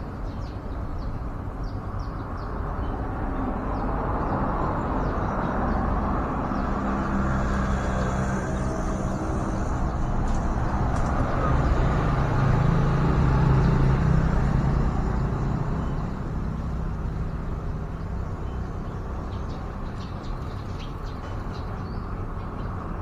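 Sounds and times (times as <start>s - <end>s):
vehicle engine passing: 5.6s - 16.4s.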